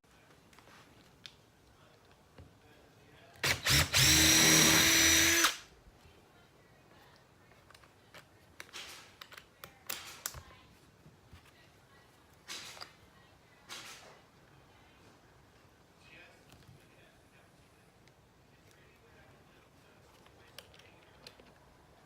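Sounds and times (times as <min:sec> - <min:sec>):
power drill whirring: 0:03.4 - 0:05.6.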